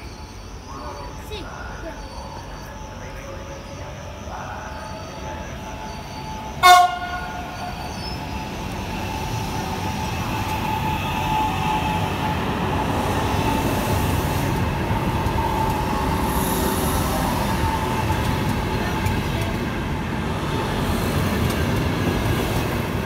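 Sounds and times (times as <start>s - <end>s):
train wheel and running noise: 0.0s - 23.0s
train horn blast: 6.6s - 7.8s.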